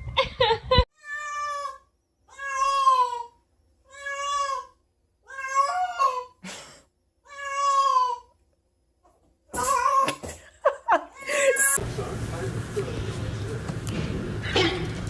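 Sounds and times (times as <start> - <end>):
cat meowing: 1.0 - 3.3, 3.9 - 4.7, 5.3 - 6.3, 7.3 - 8.3.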